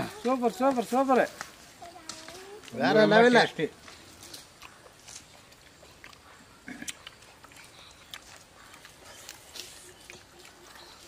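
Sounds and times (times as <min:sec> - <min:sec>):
people biting and chewing meat: 0:03.8 - 0:11.0
mouth clicks and snaps: 0:03.9 - 0:11.0.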